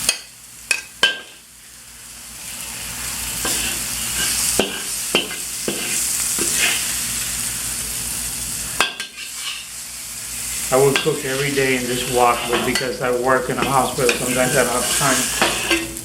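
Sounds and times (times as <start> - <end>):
food sizzling in a wok: 0.0 - 16.0
metal spatula scraping a wok: 3.4 - 6.9, 8.8 - 9.7, 10.8 - 16.0.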